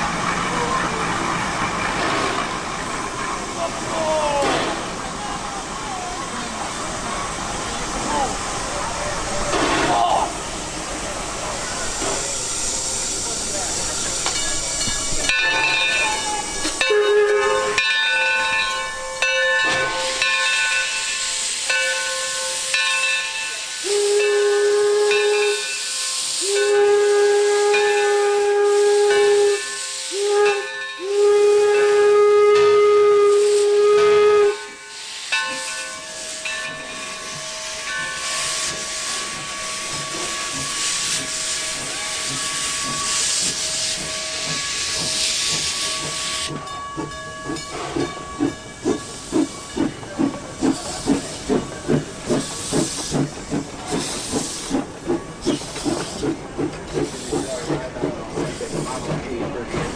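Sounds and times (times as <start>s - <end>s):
whistle long blasts: 23.8s - 35.0s.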